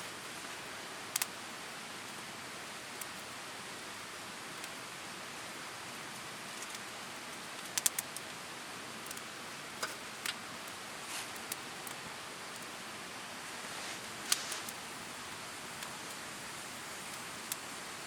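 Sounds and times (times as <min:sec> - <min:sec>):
campfire crackling hiss: 0:00.0 - 0:18.0
sharp fire pops: 0:07.6 - 0:08.3, 0:14.2 - 0:14.8.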